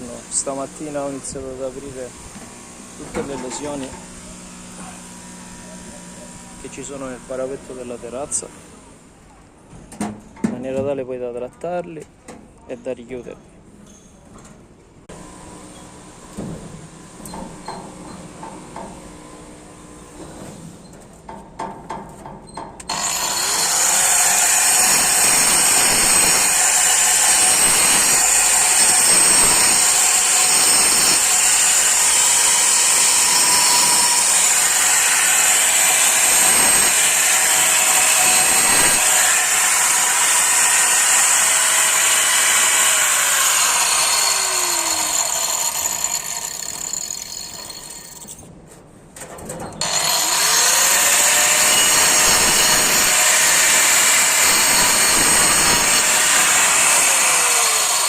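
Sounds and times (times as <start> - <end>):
angle grinder cutting masonry: 0.0 - 8.5, 22.9 - 48.3, 49.8 - 58.0.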